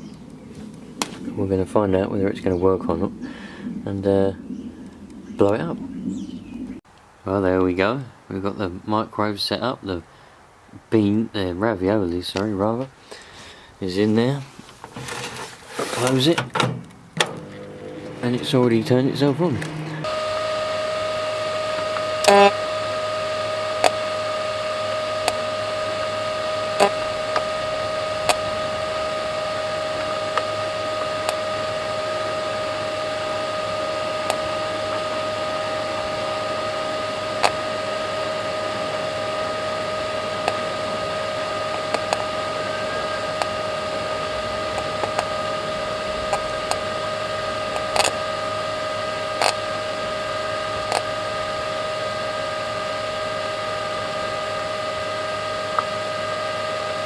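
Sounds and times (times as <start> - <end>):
microwave oven humming: 17.2 - 57.0
sparking snaps: 47.7 - 48.2, 49.4 - 49.6.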